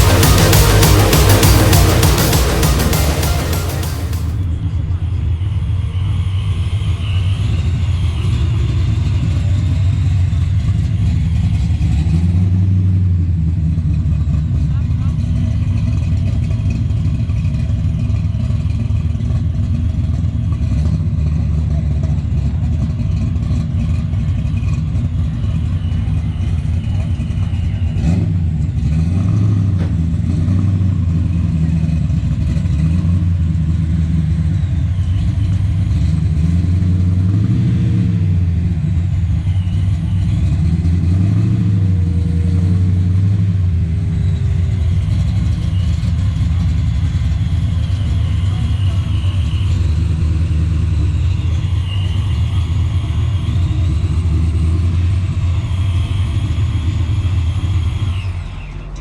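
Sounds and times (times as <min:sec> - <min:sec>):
car engine revving: 0:00.0 - 0:04.4, 0:27.2 - 0:59.0.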